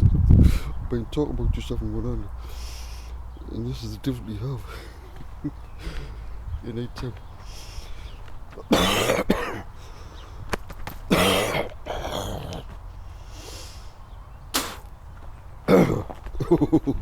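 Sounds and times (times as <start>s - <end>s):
breathing: 0.4s - 0.8s, 2.4s - 3.2s, 4.6s - 6.4s, 7.4s - 8.2s, 9.7s - 10.5s, 13.0s - 14.0s
man coughing: 8.6s - 9.7s, 11.1s - 12.6s, 15.7s - 16.7s.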